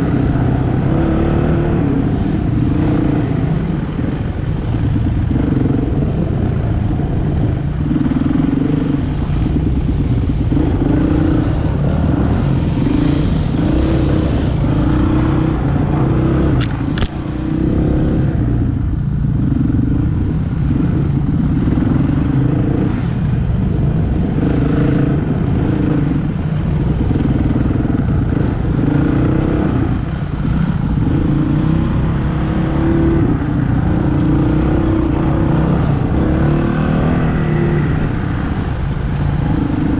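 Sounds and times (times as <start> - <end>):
motorcycle engine revving: 0.0 - 39.9
sharp click: 16.6 - 17.2.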